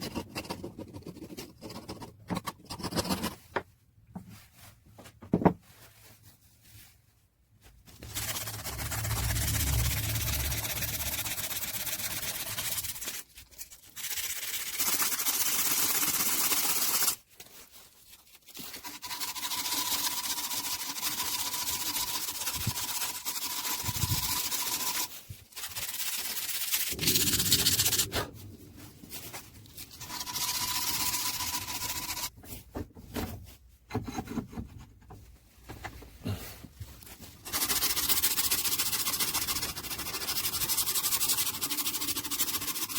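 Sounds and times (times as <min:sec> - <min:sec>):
sanding metal parts: 0:07.9 - 0:17.2, 0:18.2 - 0:28.3, 0:29.2 - 0:32.3, 0:37.4 - 0:42.9.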